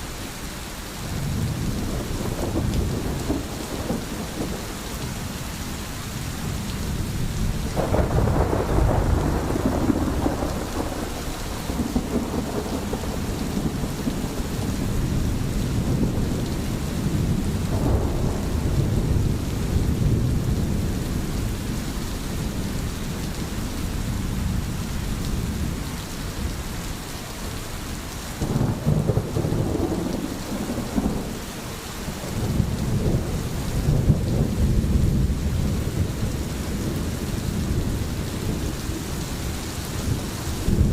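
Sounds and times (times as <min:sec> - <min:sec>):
steady rain: 0:00.0 - 0:40.9
thunder rolling: 0:01.2 - 0:05.2, 0:07.1 - 0:21.0, 0:28.4 - 0:31.4, 0:32.2 - 0:39.2, 0:40.0 - 0:40.9.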